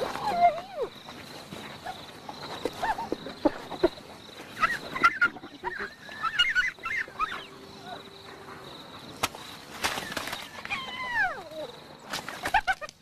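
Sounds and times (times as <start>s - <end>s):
hyenas squealing and giggling: 0.0s - 1.0s, 1.8s - 8.1s.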